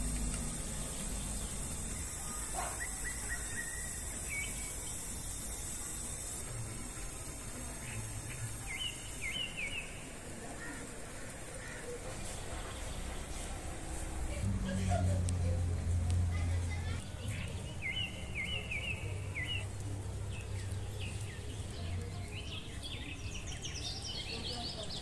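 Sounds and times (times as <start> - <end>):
bird chirping: 0.0 - 6.4, 7.8 - 10.1, 17.0 - 25.0
steady hiss: 0.0 - 14.5.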